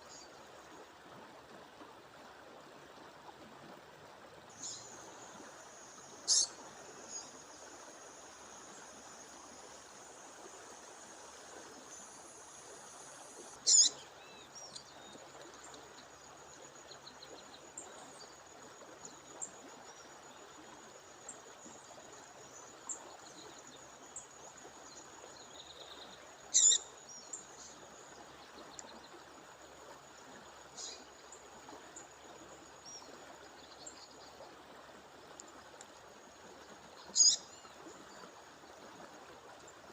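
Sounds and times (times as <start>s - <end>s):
songbird calls: 4.5s - 7.5s, 11.8s - 16.3s, 24.9s - 29.2s, 30.8s - 31.1s, 36.9s - 38.3s
faint bird chirps: 6.2s - 7.4s, 13.4s - 15.8s, 25.5s - 27.8s, 37.0s - 38.3s.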